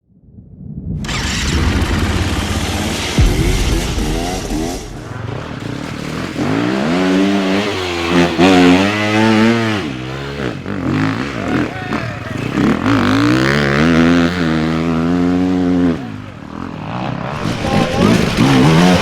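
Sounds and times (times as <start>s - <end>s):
dirt bike engine revving: 1.0s - 19.0s.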